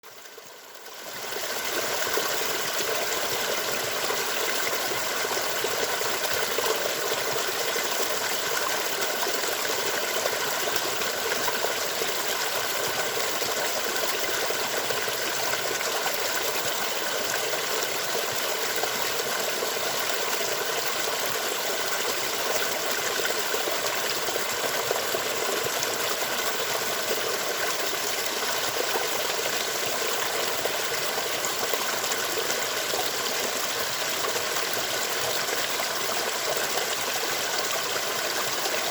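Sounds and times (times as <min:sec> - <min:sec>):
stream water rushing: 0:01.1 - 0:38.9.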